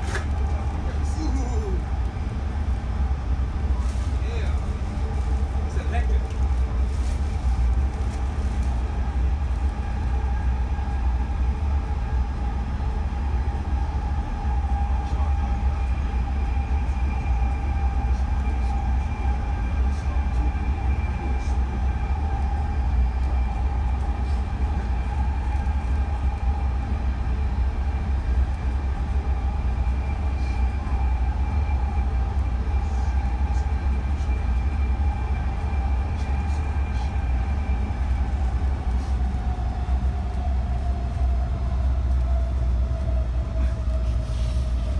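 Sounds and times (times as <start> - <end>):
train car rumbling on track: 0.0 - 44.9
train whine: 0.0 - 44.9.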